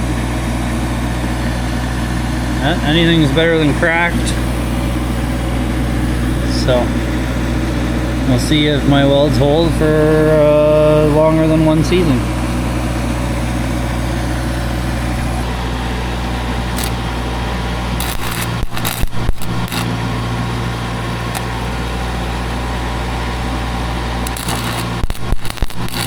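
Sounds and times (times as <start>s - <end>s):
machine hum: 0.0s - 26.0s
welding crackling hiss: 3.6s - 11.3s, 16.1s - 26.0s.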